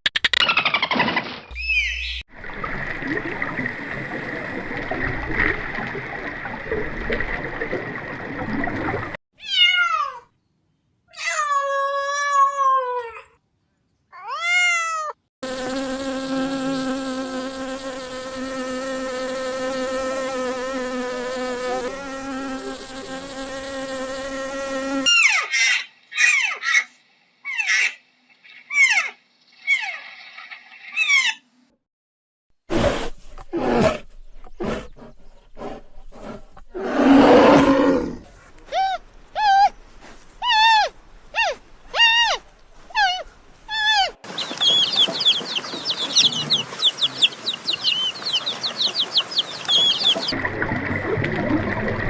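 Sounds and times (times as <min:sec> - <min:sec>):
cat meowing: 0:09.4 - 0:10.3
short calls: 0:43.0 - 0:50.4.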